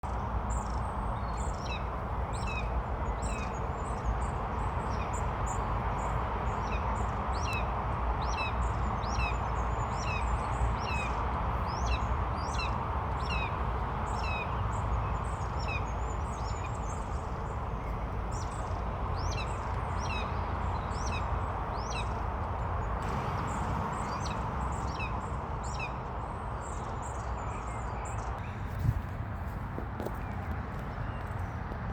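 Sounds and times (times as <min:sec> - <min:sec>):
birds chirping: 0:11.7 - 0:28.7.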